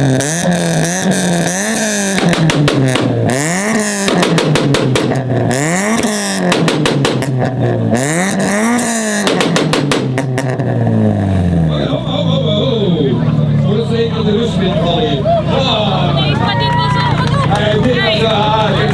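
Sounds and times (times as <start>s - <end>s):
car engine revving: 0.0s - 18.9s
rapid crackling pops: 2.1s - 3.2s, 3.8s - 5.3s, 5.9s - 7.5s.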